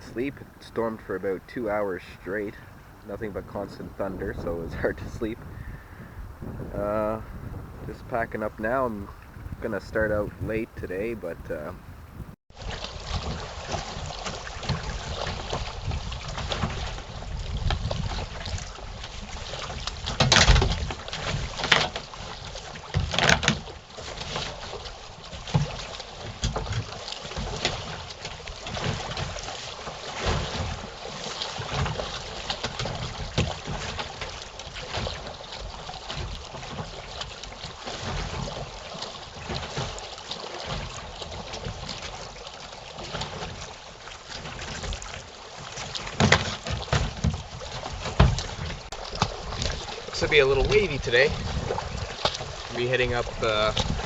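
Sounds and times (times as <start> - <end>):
wind rumbling on microphone: 0.0 - 31.0, 43.0 - 54.0
kayak bumps: 0.0 - 54.0
water sloshing: 0.0 - 54.0.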